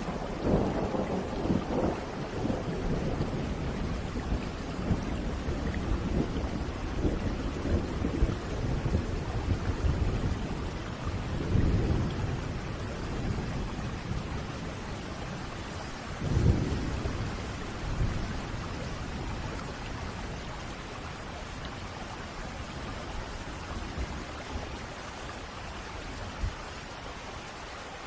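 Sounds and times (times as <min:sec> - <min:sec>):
rolling thunder: 0:00.0 - 0:21.8
steady rain: 0:00.0 - 0:28.0.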